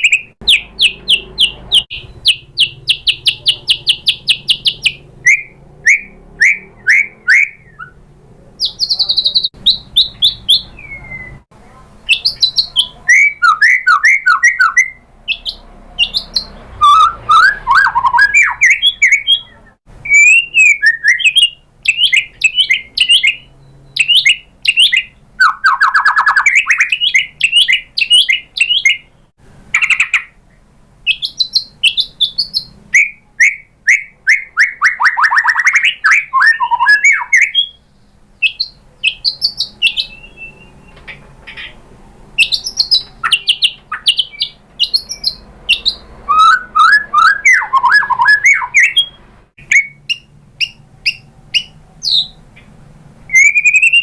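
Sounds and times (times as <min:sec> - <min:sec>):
songbird singing varied phrases: 0:00.0 - 0:11.4, 0:12.0 - 0:41.8, 0:42.4 - 0:52.7, 0:53.3 - 0:54.0.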